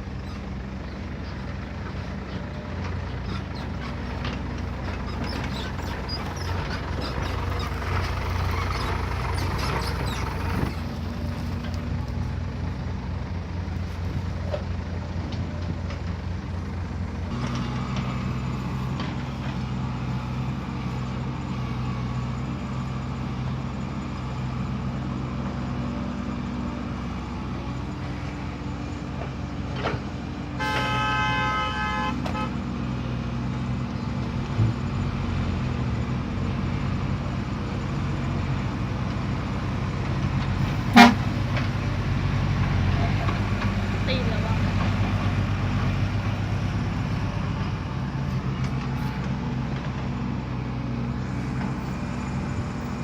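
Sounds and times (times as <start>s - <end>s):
heavy machinery engines running: 0.0s - 53.0s
vehicle horn: 30.6s - 32.6s, 40.8s - 41.4s.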